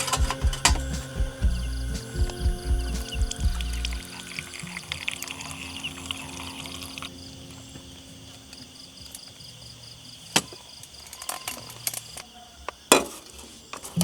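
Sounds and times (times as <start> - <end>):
water pouring: 0.0 - 7.1
insects chirping: 0.0 - 14.0.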